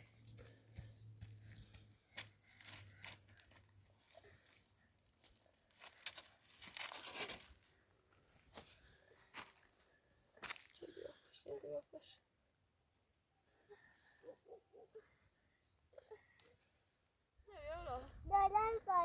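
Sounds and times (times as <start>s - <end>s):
faint crackling and rustling: 0.0s - 12.0s.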